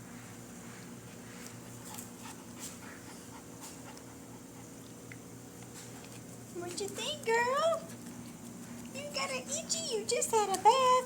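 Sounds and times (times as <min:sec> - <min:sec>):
dog panting: 0:01.5 - 0:04.8.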